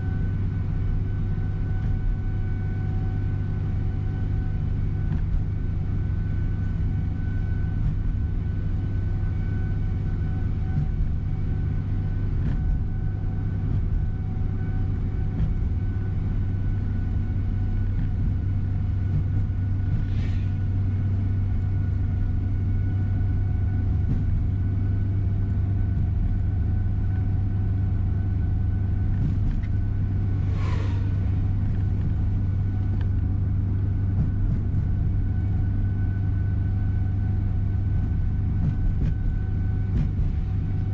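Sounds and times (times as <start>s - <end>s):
bus engine drone from inside: 0.0s - 40.9s
brief higher swish: 30.2s - 32.3s.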